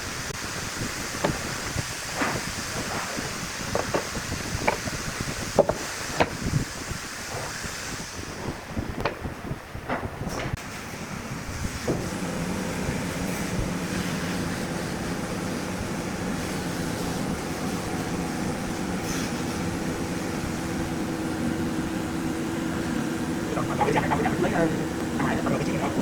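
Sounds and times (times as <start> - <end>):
machine humming: 12.1 - 26.0.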